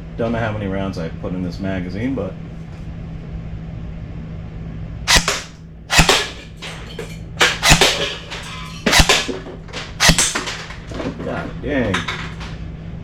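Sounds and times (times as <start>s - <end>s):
airsoft gun shots: 5.1s - 6.7s, 7.4s - 9.4s, 10.0s - 10.6s.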